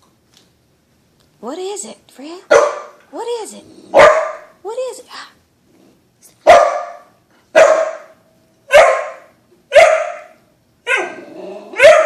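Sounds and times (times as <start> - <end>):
dog barking: 2.5 - 3.0, 3.9 - 4.6, 6.4 - 12.0.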